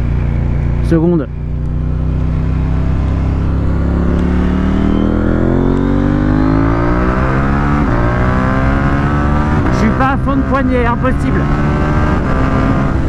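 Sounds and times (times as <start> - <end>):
motorcycle engine accelerating hard: 0.0 - 13.0
wind rush on microphone: 11.3 - 13.0.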